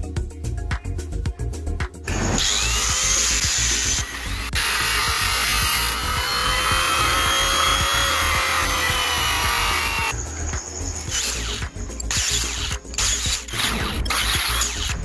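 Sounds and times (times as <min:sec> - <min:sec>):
background music with steady beat: 0:00.0 - 0:15.0
power tool whining: 0:02.1 - 0:15.0.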